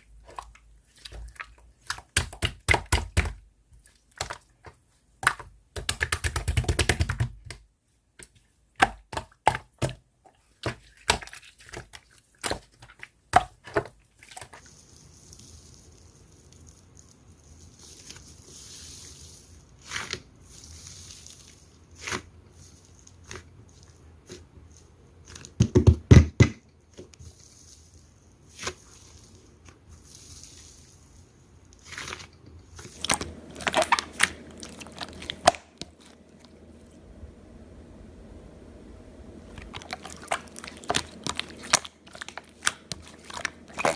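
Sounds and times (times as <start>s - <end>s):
slime clicking and crackling: 32.8s - 36.7s, 39.5s - 43.9s.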